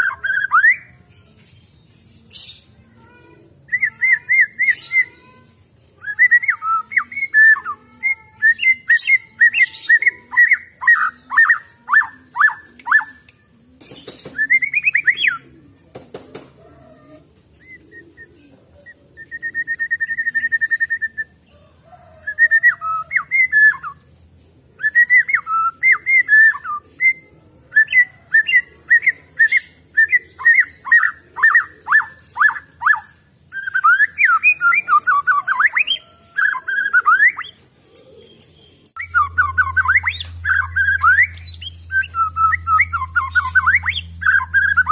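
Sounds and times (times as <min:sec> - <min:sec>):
bird singing whistled notes: 0:06.0 - 0:07.7, 0:14.2 - 0:15.4, 0:18.8 - 0:21.3, 0:24.8 - 0:44.9
buzzy bird trill: 0:30.5 - 0:44.9.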